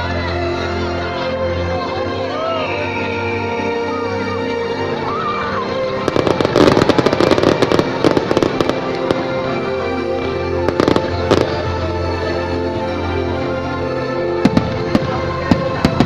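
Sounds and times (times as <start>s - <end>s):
music: 0.0s - 16.0s
fireworks cracking and banging: 6.0s - 13.0s, 14.3s - 16.0s.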